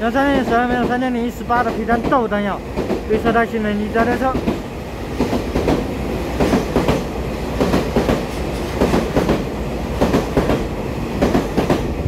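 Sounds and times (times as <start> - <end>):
train rumble: 0.0 - 12.0
train wheels clacking over rail joints: 4.0 - 11.9.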